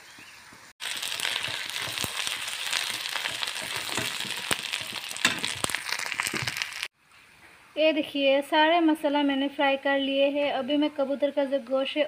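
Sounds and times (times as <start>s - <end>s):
onions sizzling in hot oil: 0.8s - 7.0s
metal spatula scraping pan: 1.4s - 5.7s.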